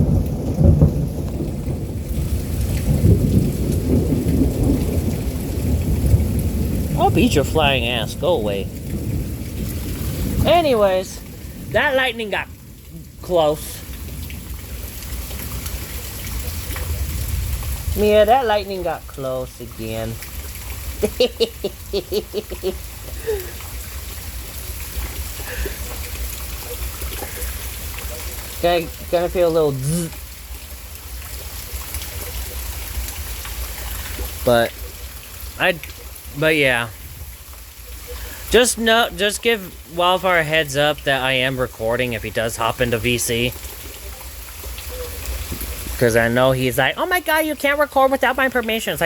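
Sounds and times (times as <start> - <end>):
thunder rolling: 0.0 - 30.0
steady rain: 0.0 - 49.0
person speaking: 7.0 - 8.7, 10.4 - 13.9, 28.5 - 30.2, 38.5 - 43.5.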